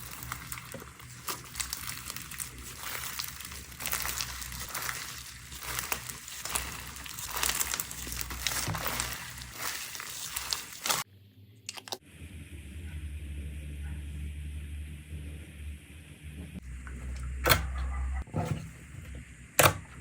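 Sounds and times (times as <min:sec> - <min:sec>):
slime crackling and popping: 0:00.0 - 0:11.0
faint low hum: 0:11.1 - 0:19.3.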